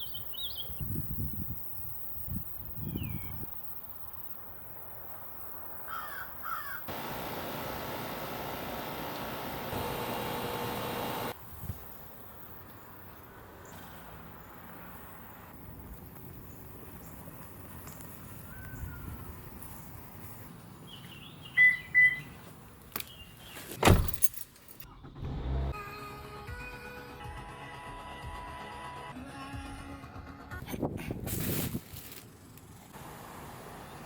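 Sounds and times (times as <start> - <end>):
outdoor background noise: 0.0 - 25.8, 27.3 - 34.0
bird chirping: 20.8 - 23.7
music: 25.7 - 30.7.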